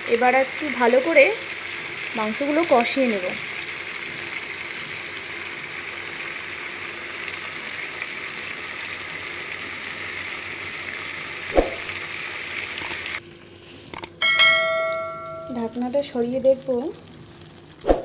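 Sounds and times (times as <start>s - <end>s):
meat sizzling in hot oil: 0.0s - 13.2s, 14.9s - 18.0s.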